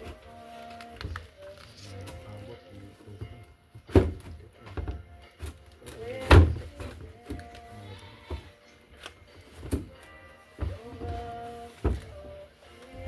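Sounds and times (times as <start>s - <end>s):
background music: 0.0s - 13.0s
heavy thuds: 6.2s - 7.3s, 9.6s - 12.4s.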